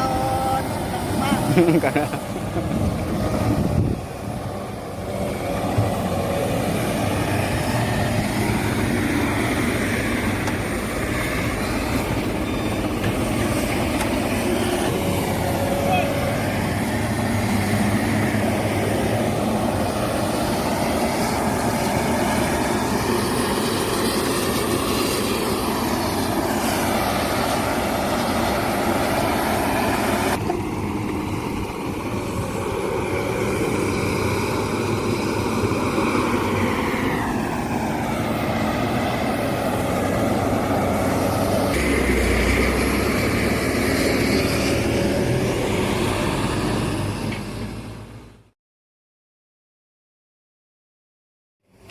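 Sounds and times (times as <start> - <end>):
heavy diesel machinery revving: 0.0 - 48.5.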